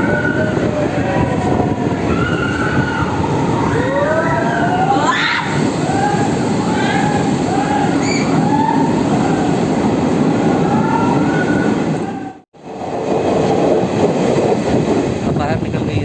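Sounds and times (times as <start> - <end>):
wheels squealing: 0.0 - 12.3
train wheels rumbling on rails: 0.0 - 16.0.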